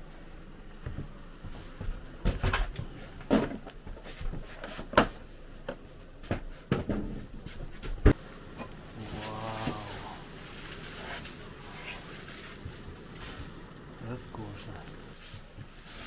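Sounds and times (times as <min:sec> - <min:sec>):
cabinet parts knocking and clunking: 0:01.8 - 0:08.2.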